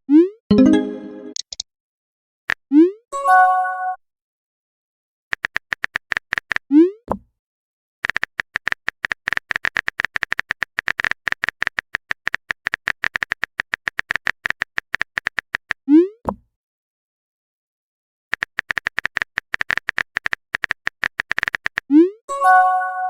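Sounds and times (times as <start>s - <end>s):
upward-sliding blip: 0.5s - 1.6s
rapid typing clicks: 5.3s - 6.6s, 8.0s - 15.8s, 18.3s - 21.9s.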